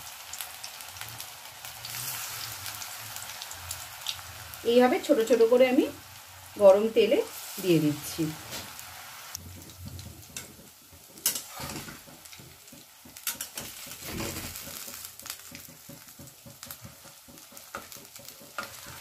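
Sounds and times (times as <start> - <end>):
fritters sizzling in hot oil: 0.0 - 19.0
metal spatula knocking on pan: 9.4 - 19.0.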